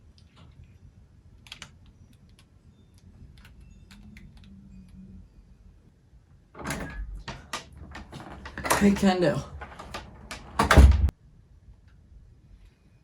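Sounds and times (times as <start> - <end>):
typing on computer keyboard: 1.4 - 4.6.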